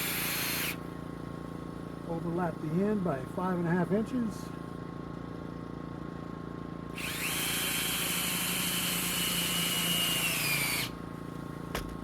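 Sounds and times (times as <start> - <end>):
power drill driving a screw: 0.0 - 0.8, 7.0 - 11.0.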